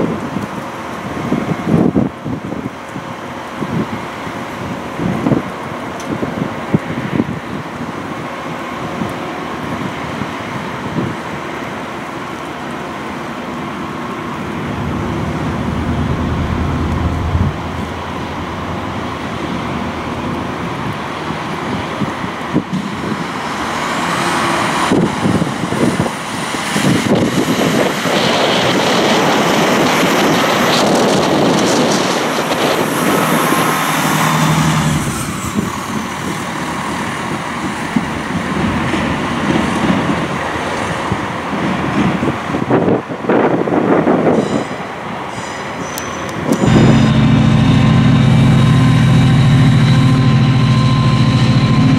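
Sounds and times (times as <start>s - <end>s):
diesel train engine: 0.0s - 51.9s
high-pitched whine: 14.3s - 22.0s, 46.0s - 51.9s.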